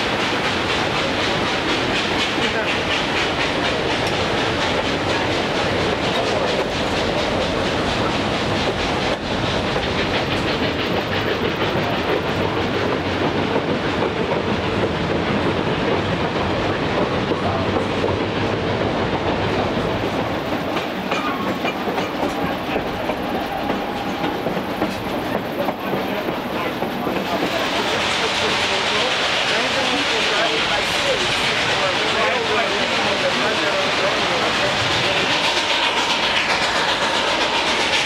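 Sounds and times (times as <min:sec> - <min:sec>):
train wheels rattling over rails: 0:00.0 - 0:38.0.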